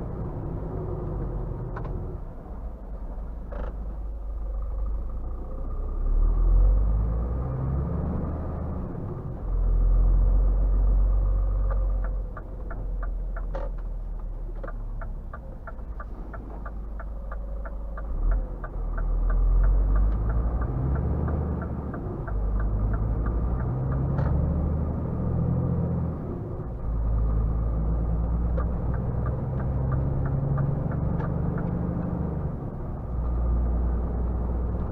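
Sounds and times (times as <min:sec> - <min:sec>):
diesel truck engine rumbling: 0:00.0 - 0:34.9
turn indicator ticking: 0:10.6 - 0:25.9, 0:26.6 - 0:34.9.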